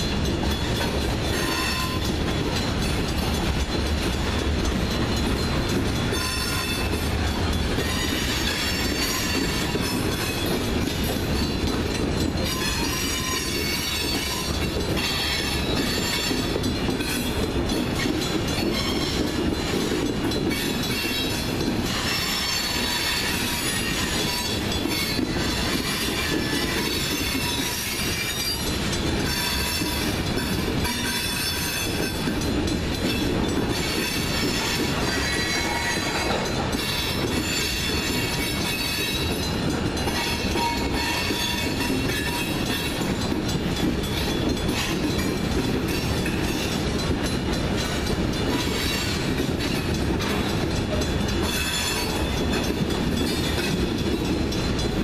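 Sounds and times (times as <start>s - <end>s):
train wheels rumbling on rails: 0.0s - 55.0s
wheel squeal: 40.2s - 42.9s.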